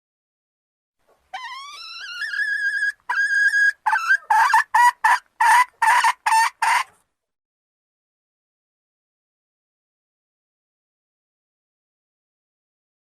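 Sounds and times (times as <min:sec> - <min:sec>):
junglefowl calling: 0:01.3 - 0:07.0.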